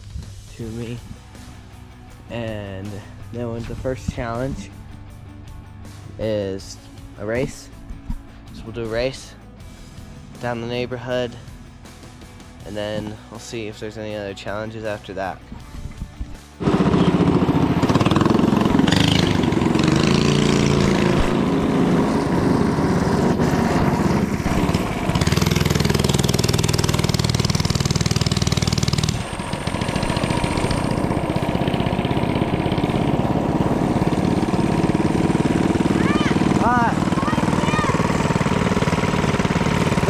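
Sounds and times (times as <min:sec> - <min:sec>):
mini bike engine revving: 0:16.6 - 0:40.0.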